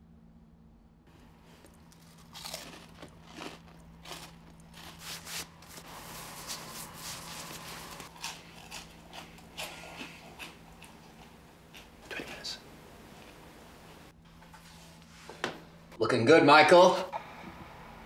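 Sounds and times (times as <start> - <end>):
crunching and chewing snacks: 1.2 - 5.8, 7.3 - 12.5.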